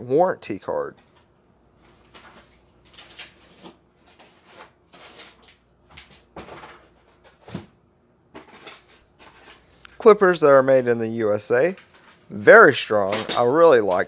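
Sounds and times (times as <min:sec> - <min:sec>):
paper rustling: 0:01.8 - 0:07.6.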